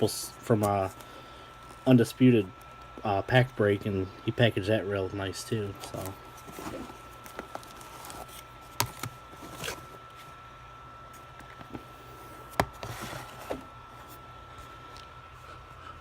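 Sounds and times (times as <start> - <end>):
packaging rustling: 5.6 - 10.4.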